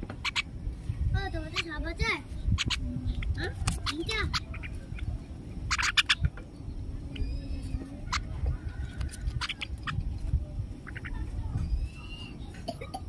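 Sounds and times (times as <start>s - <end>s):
birds squawking: 0.0s - 0.6s, 1.4s - 10.2s, 10.8s - 12.6s
low background rumble: 0.0s - 13.0s
thin bird whistles: 7.2s - 7.8s, 11.6s - 12.5s.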